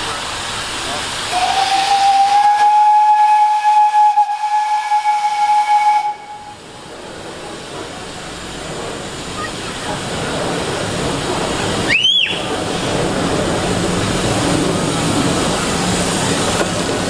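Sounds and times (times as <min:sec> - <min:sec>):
steam hissing: 0:00.0 - 0:17.0
steam locomotive whistle: 0:01.3 - 0:06.6, 0:11.9 - 0:12.5.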